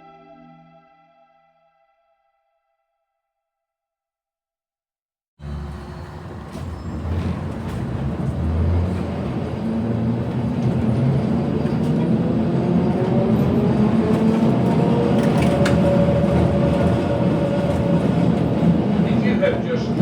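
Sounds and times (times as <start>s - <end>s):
tram rumbling along track: 5.4s - 20.0s.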